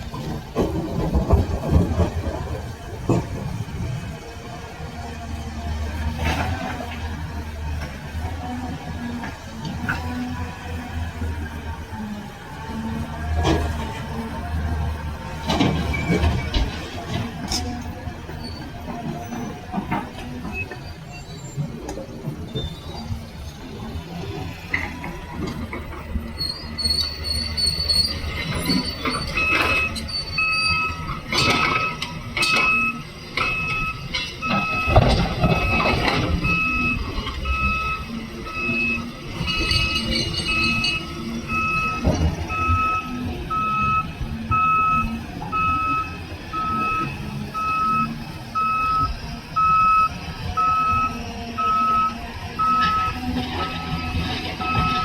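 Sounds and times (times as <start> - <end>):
diesel machinery rumble: 0.0 - 55.0
reversing alarm beeping: 26.5 - 55.0.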